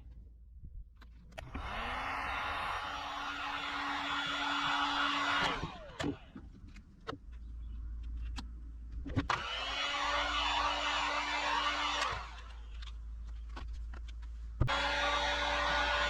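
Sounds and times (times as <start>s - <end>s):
heat gun fan whirring: 1.4s - 6.5s, 9.2s - 12.8s, 14.6s - 16.0s.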